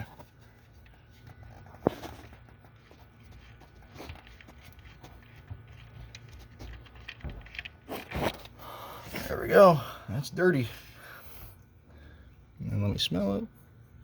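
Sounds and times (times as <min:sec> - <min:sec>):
small clicks and knocks: 0:04.0 - 0:08.5.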